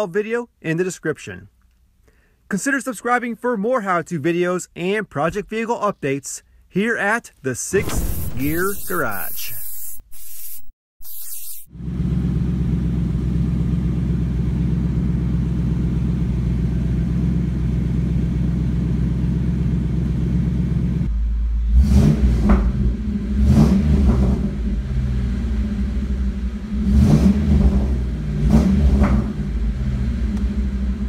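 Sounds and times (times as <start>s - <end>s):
engine revving: 21.6s - 31.0s.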